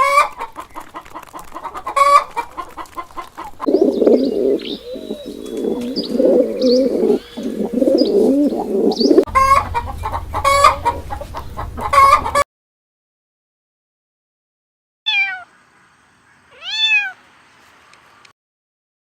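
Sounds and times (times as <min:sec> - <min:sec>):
birds cooing and clucking: 0:00.0 - 0:12.4
chicken clucking: 0:00.0 - 0:12.4
high bird chirps: 0:03.7 - 0:09.3.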